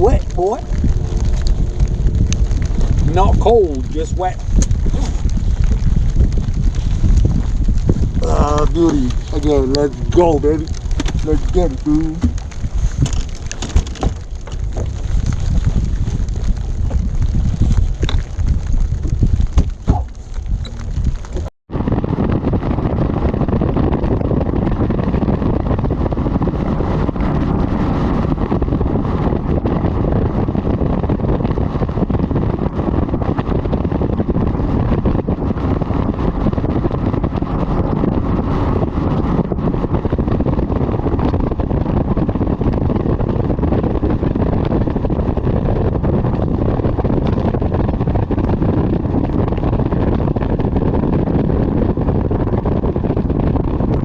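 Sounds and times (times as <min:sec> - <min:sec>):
outboard motor running: 0:00.0 - 0:21.5
wind buffeting microphone: 0:00.0 - 0:54.0.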